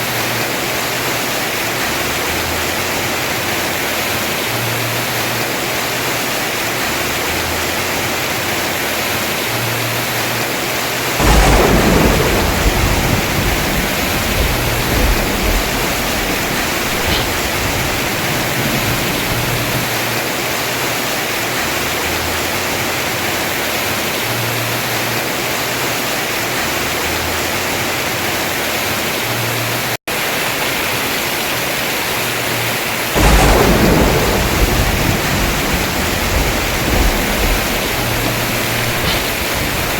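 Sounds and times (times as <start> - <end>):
heavy rain on a roof: 0.0 - 39.9
thunderclaps: 11.2 - 20.6, 33.2 - 39.9.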